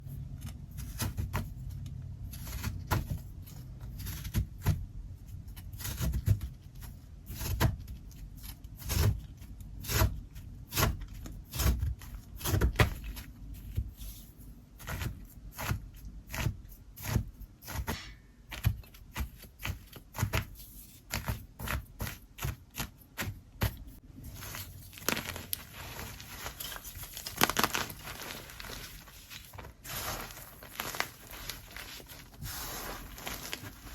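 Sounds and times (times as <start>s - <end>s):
crumbling crackle: 24.4s - 33.9s.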